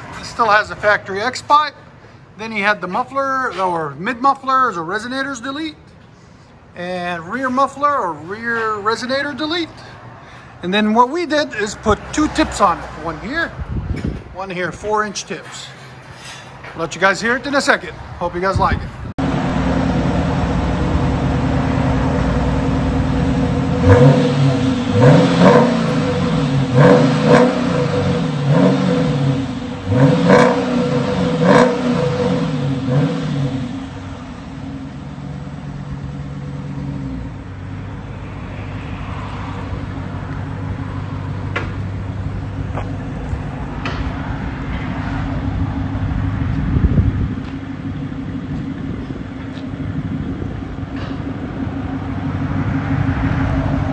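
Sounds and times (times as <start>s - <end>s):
engine revving: 19.2s - 34.8s, 38.1s - 53.9s
car engine idling: 19.2s - 53.9s.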